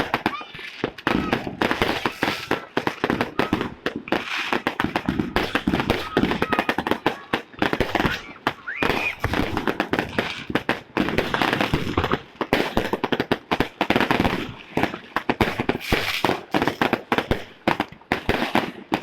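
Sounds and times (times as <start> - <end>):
firecrackers banging and crackling: 0.0 - 19.0.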